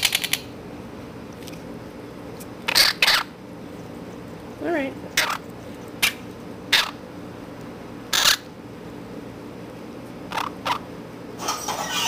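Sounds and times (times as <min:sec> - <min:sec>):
baby parrots squawking: 0:02.7 - 0:03.3, 0:05.2 - 0:05.4, 0:06.7 - 0:07.0, 0:08.1 - 0:08.5, 0:10.3 - 0:10.8.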